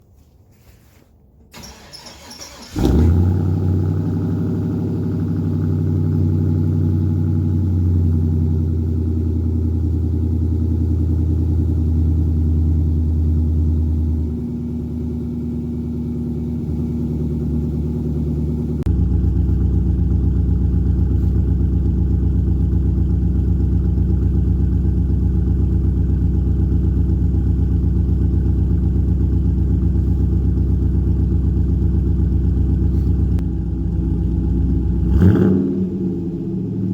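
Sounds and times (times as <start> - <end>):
starter motor cranking: 1.6 - 3.0
lumpy engine idle: 1.6 - 35.2.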